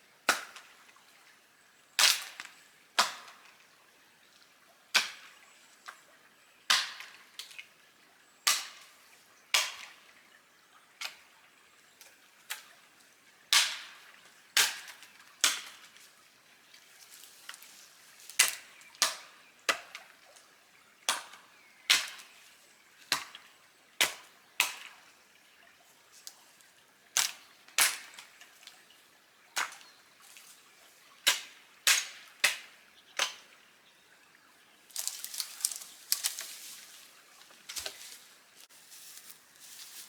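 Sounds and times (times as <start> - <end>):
dry wood cracking and popping: 34.9 - 38.2.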